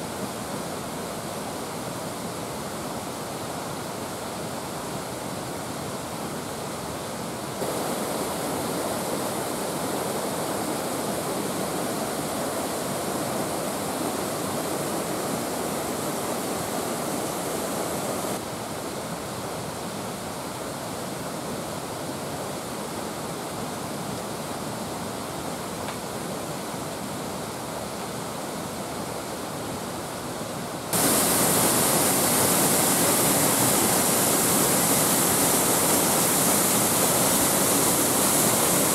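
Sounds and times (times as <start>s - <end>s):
waterfall rushing: 7.6s - 18.6s, 30.9s - 38.9s.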